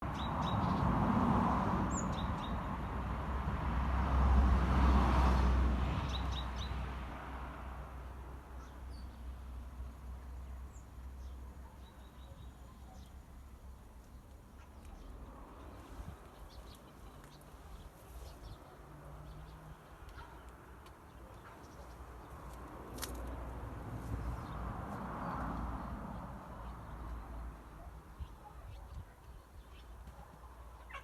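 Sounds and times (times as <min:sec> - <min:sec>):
small birds chirping: 0:10.4 - 0:23.3, 0:24.2 - 0:31.0.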